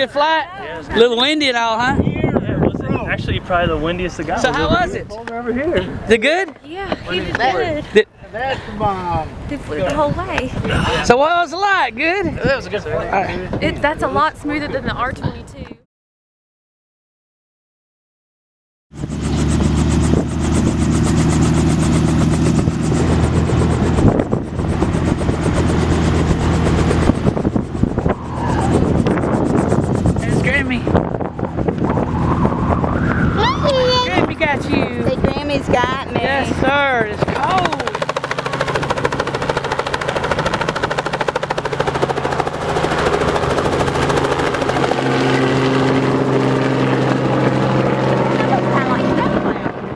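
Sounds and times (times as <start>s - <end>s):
helicopter engine and rotor drone: 0.0s - 8.5s, 19.0s - 49.9s.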